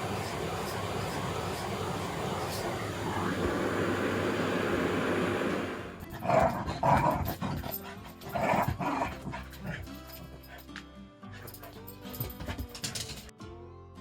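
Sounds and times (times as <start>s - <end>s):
vacuum cleaner running: 0.0s - 6.1s
dog growling barks: 6.1s - 10.6s.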